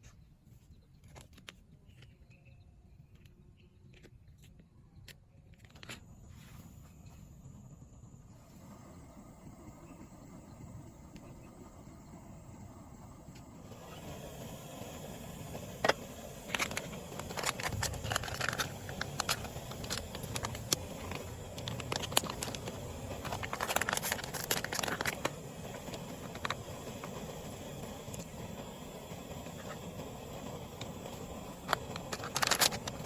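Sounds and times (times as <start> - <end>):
crackling and crinkling handling noise: 15.9 - 27.2, 31.6 - 33.0.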